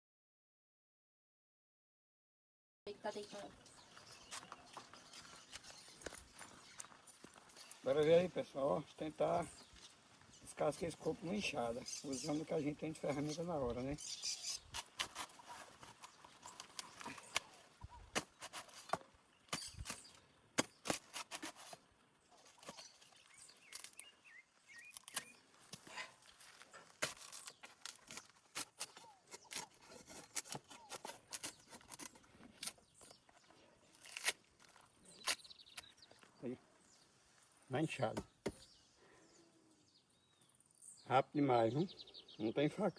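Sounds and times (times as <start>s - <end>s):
hoe blade chopping coconut husk: 14.7s - 21.8s, 26.8s - 32.8s.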